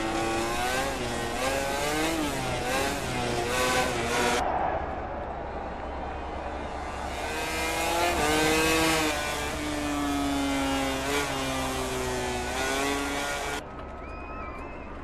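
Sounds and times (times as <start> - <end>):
racing motorcycle engines revving: 0.0 - 4.4, 6.3 - 13.6.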